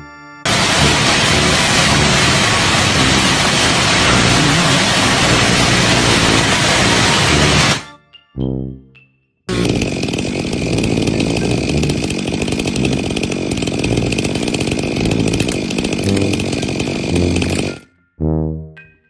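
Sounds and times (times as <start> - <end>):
power saw whining: 0.5 - 7.9, 9.5 - 17.8.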